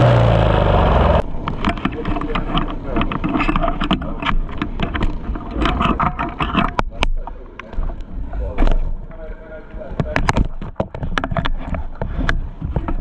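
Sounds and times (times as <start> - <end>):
small petrol engine running raggedly: 0.0 - 1.9
engine knocks and rattles: 0.0 - 6.9.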